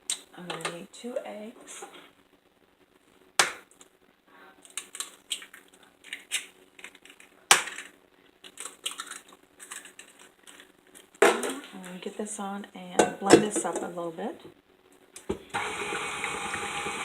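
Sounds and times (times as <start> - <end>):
eggshell clicks and crunches: 4.6 - 11.2.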